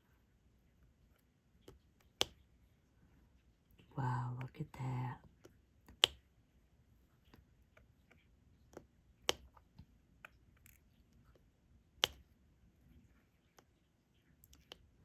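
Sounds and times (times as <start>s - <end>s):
faint clicks and light taps: 0.8s - 2.5s, 5.2s - 6.3s, 7.0s - 15.0s.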